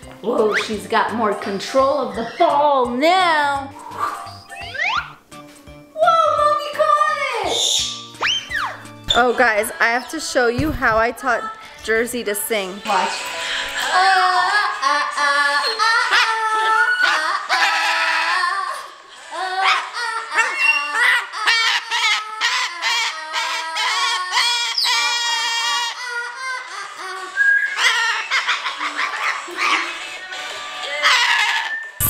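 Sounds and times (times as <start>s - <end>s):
parrot singing: 2.1s - 2.6s, 3.8s - 5.2s, 7.5s - 9.8s, 19.6s - 26.5s.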